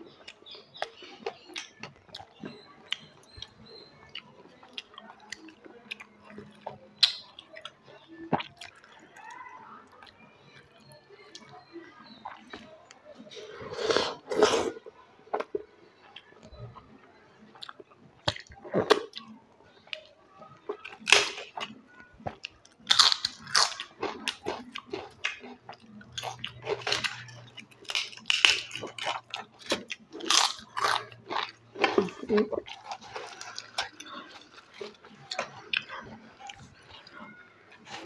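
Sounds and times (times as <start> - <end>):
person chewing: 8.3 - 9.0, 20.7 - 38.0
sharp crunches of crisp food: 22.8 - 35.6.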